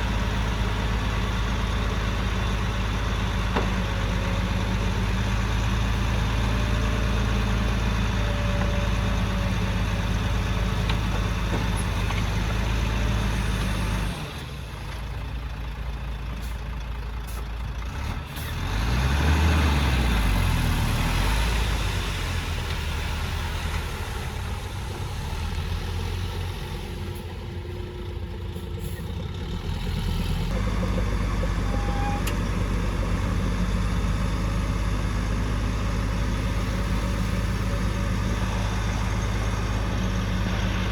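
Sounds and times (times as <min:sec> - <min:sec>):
diesel engine droning: 0:00.0 - 0:40.9
engine revving: 0:17.9 - 0:23.5.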